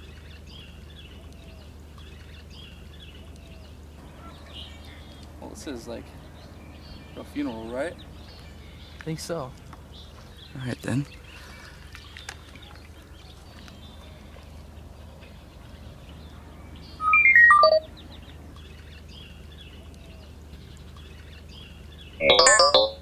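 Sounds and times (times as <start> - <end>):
steady low hum: 0.0 - 23.0
descending electronic beeps: 17.0 - 17.9, 22.2 - 23.0.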